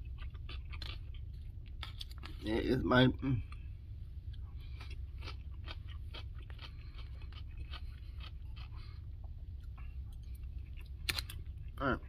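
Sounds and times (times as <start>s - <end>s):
person chewing crunchy food: 0.0s - 12.0s
steady low hum: 0.0s - 12.0s.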